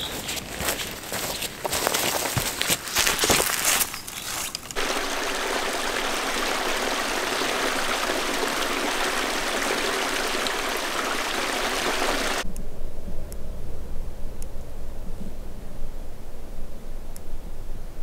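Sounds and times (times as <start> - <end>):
stream water rushing: 4.8 - 12.4.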